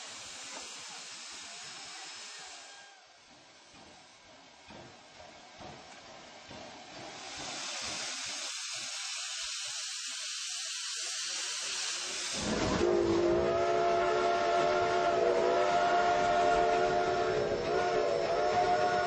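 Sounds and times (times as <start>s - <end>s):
steam hiss: 0.0s - 19.0s
steam whistle chord: 12.4s - 19.0s.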